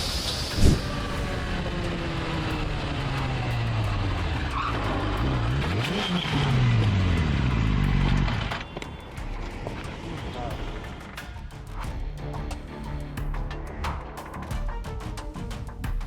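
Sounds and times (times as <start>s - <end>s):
road noise: 0.0s - 12.9s
car engine running: 0.7s - 11.2s.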